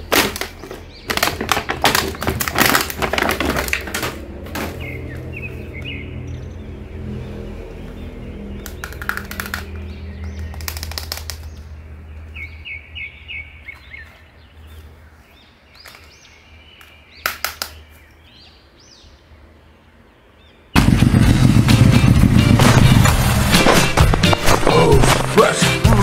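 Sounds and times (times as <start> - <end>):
plastic action figure clicks: 8.6 - 11.7, 16.8 - 17.8
loud music: 20.8 - 26.0.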